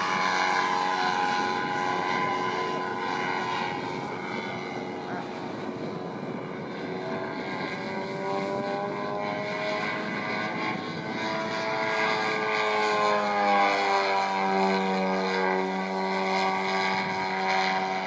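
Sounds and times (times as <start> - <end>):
model airplane propeller drone: 0.0 - 18.0.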